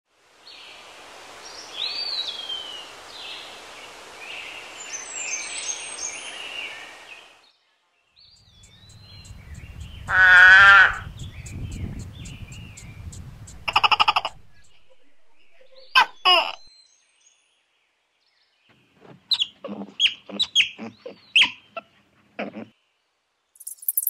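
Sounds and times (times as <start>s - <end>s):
outdoor hiss: 0.1s - 7.5s, 8.2s - 15.9s
toad calling: 8.4s - 16.7s, 23.6s - 24.0s.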